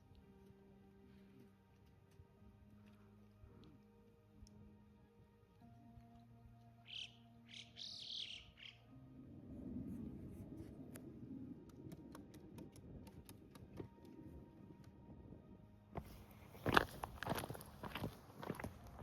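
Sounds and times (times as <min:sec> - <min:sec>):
small birds chirping: 0:06.8 - 0:08.9.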